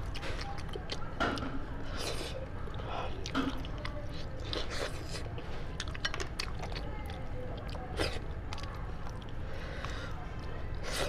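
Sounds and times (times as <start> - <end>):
person chewing meat: 0.0 - 10.1.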